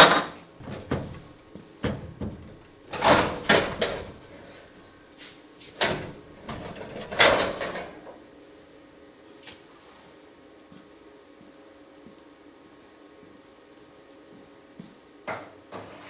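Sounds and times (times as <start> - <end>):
sharp knocks and clunks: 0.0 - 4.4.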